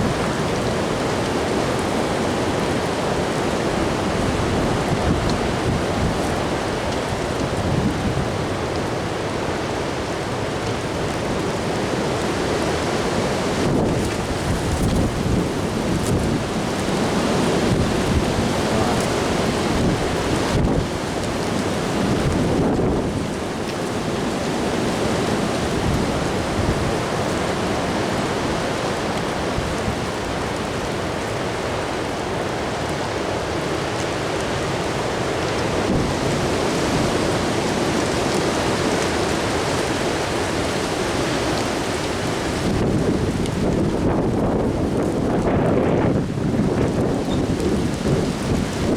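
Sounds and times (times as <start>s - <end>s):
strong gusting wind: 0.0s - 31.8s, 34.0s - 48.9s
wind buffeting microphone: 3.2s - 8.9s, 13.4s - 23.9s, 42.2s - 48.9s.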